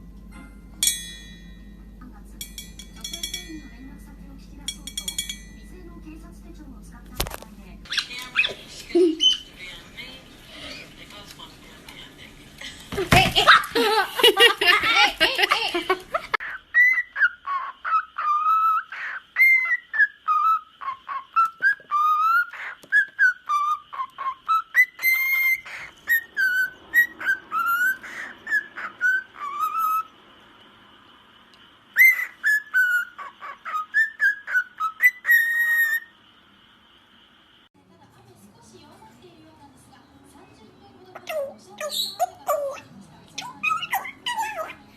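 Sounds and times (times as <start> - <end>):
cockatiel whistling: 16.4 - 30.1, 31.9 - 36.1.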